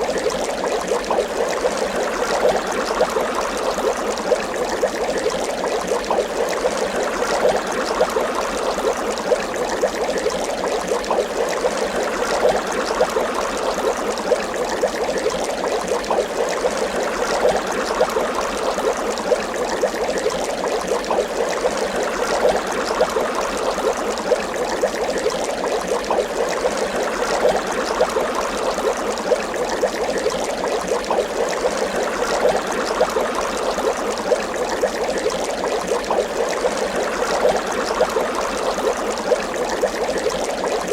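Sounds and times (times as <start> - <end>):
water bubbling: 0.0 - 40.9.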